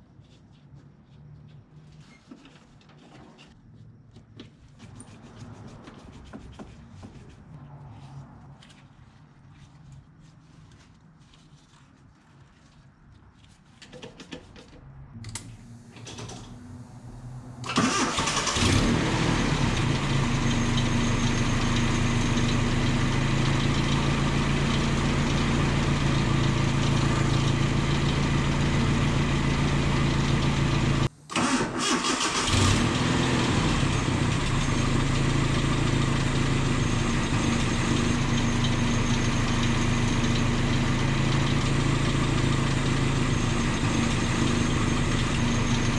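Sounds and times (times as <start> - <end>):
pickup engine starting and idling: 15.3 - 45.9.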